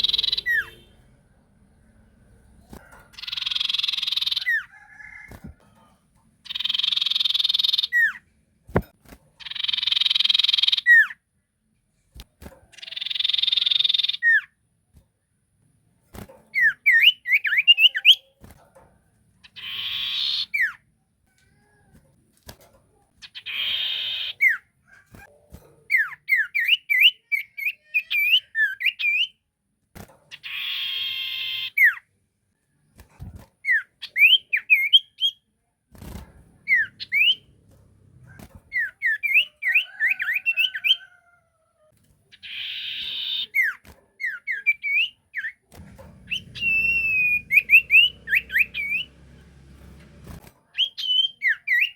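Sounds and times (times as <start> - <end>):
bird whistled chirps: 0.0 - 0.9, 46.3 - 49.1.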